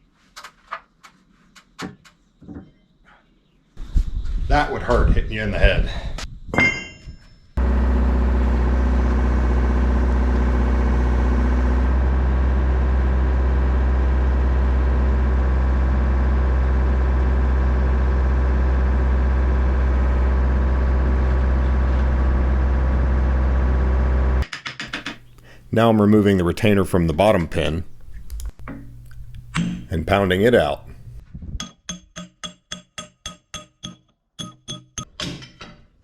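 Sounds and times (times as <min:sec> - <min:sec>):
large diesel engine running: 0:07.6 - 0:24.4.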